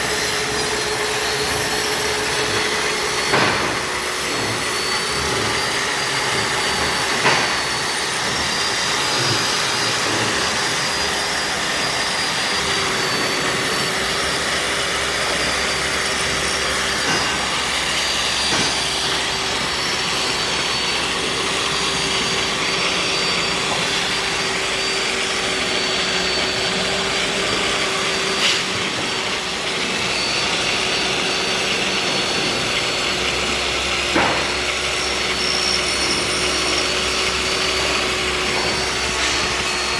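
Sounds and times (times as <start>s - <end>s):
grinding machine whine: 0.0s - 39.9s.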